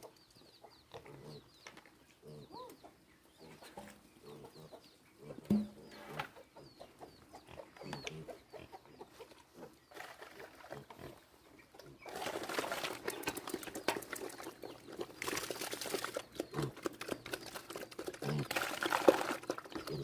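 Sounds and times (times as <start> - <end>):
crackling rustle: 12.1 - 20.0
pigs grunting: 17.9 - 20.0.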